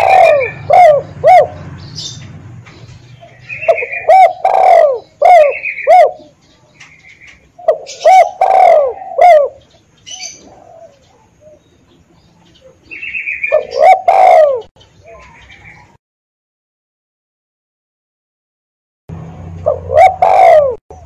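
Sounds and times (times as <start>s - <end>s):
dove cooing: 0.0s - 2.2s, 2.8s - 16.0s, 19.6s - 21.0s
small birds chirping: 0.0s - 16.0s.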